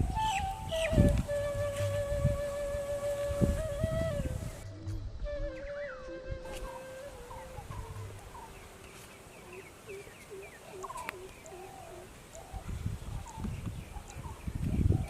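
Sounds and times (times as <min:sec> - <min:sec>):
birds chirping: 0:00.0 - 0:02.2, 0:03.1 - 0:15.0
faint click: 0:10.8 - 0:11.6.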